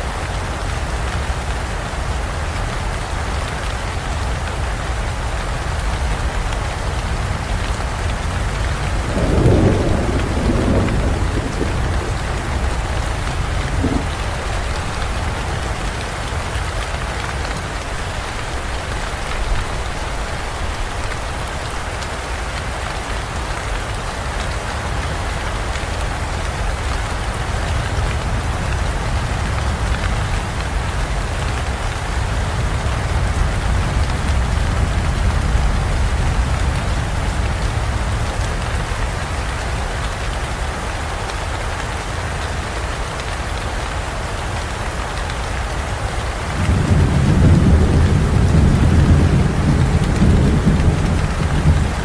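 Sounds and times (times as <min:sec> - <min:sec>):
heavy rain in a forest: 0:00.0 - 0:52.0
thunder rumble: 0:07.0 - 0:22.0, 0:46.5 - 0:52.0.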